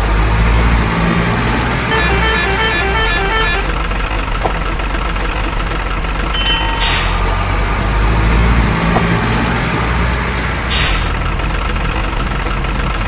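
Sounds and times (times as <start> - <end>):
heavy truck engine running: 0.0 - 13.0
horn-like notes stepping in pitch: 0.4 - 4.2.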